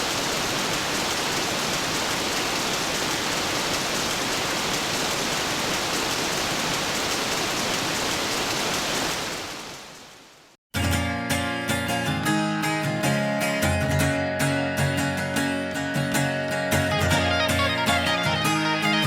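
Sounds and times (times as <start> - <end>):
heavy rain hiss: 0.0 - 10.6.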